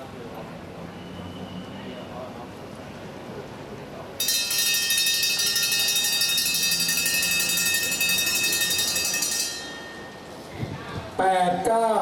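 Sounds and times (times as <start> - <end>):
lap bell ringing rapidly: 4.2 - 10.5.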